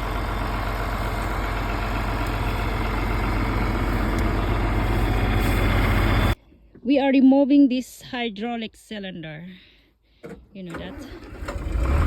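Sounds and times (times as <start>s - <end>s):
tractor engine idling: 0.0s - 6.4s.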